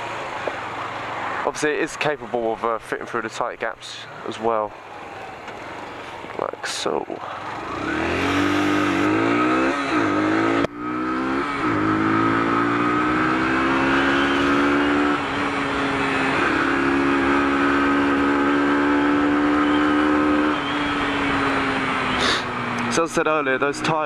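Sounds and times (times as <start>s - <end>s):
motorcycle engine accelerating: 7.2s - 24.0s.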